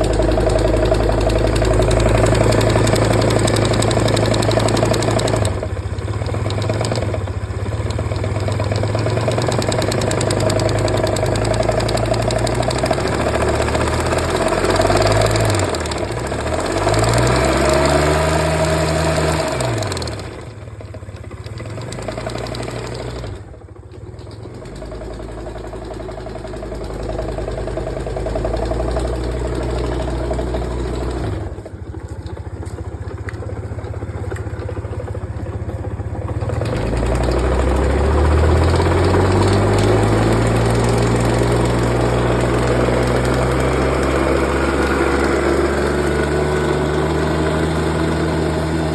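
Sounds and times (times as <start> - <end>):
scooter engine revving and idling: 0.0 - 48.9.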